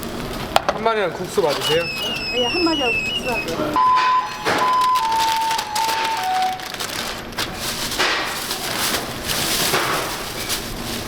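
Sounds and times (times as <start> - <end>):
crackling rustling noise: 0.0 - 0.5, 4.3 - 11.0.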